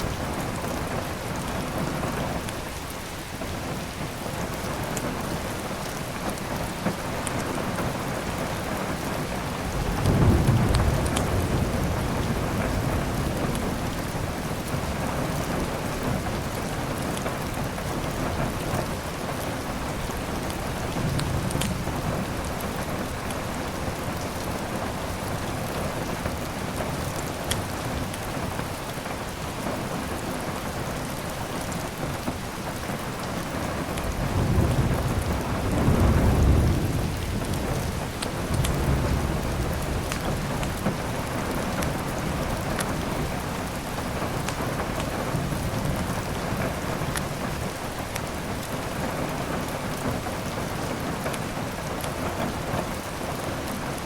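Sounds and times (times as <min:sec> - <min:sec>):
heavy rain: 0:00.0 - 0:54.0
thunder rumbling: 0:08.3 - 0:19.1, 0:33.9 - 0:50.7.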